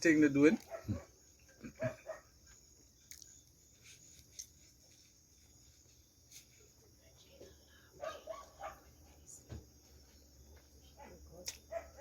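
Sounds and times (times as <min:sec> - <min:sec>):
steady high hiss: 0:02.4 - 0:08.4.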